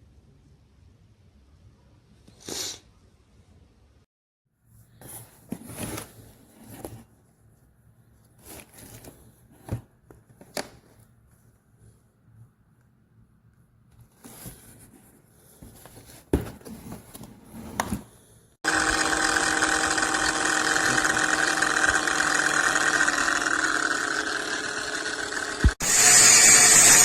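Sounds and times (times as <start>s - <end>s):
angle grinder whining: 18.6s - 27.0s.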